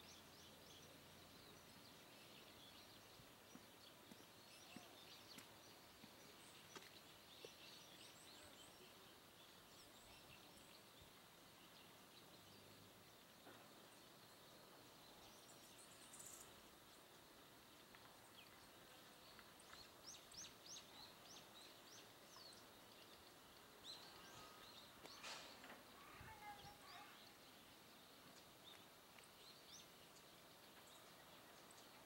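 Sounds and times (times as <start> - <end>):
faint small birds chirping: 0.0 - 32.0
low background hiss: 0.0 - 32.0.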